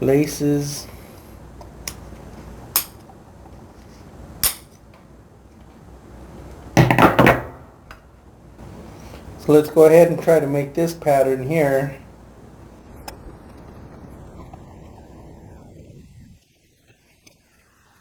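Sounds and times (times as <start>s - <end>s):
hard objects clicking on workbench: 2.8s - 3.1s.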